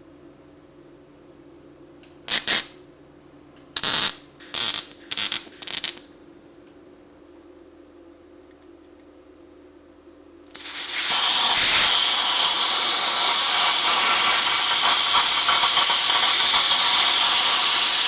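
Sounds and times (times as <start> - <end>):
short welding bursts: 2.3 - 2.8, 3.8 - 6.1, 10.6 - 18.0.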